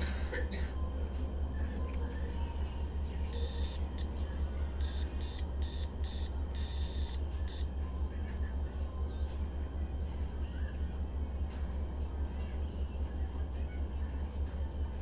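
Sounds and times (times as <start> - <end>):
low electrical hum: 0.0 - 15.0
electronic beeps: 3.4 - 4.1, 4.8 - 7.7.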